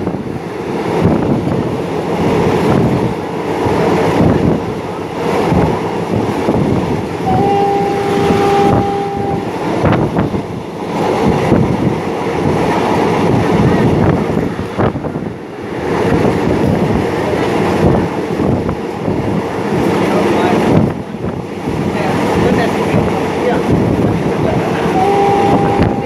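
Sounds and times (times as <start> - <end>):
train wheels rumbling on rail: 0.0 - 26.0
wind noise: 0.0 - 26.0
locomotive horn blast: 7.2 - 10.0, 24.9 - 26.0.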